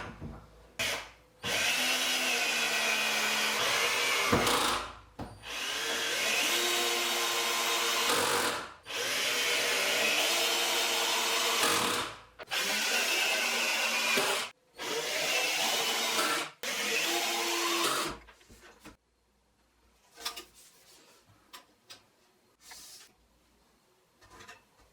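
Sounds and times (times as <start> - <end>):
electric drill running: 5.4 - 18.1.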